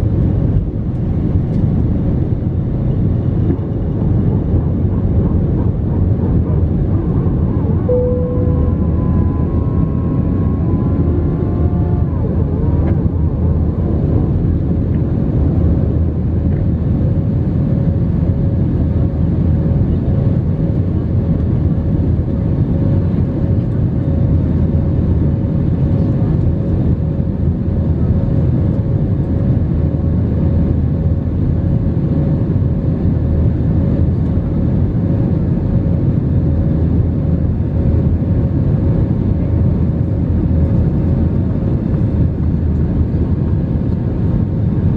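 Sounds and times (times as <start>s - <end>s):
steady hum: 0.0s - 25.2s
jet engines and airflow rumble: 0.0s - 44.9s.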